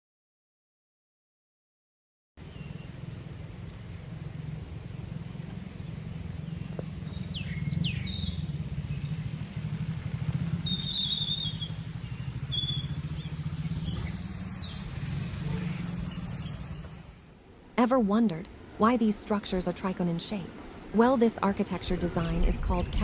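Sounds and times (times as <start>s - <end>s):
birds chirping: 2.4s - 17.2s
low engine hum: 2.4s - 17.7s, 19.9s - 23.0s.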